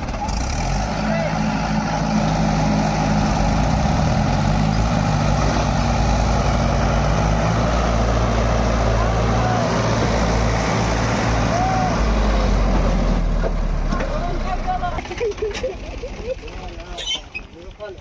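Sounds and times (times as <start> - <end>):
diesel tractor engine straining: 0.0 - 18.0.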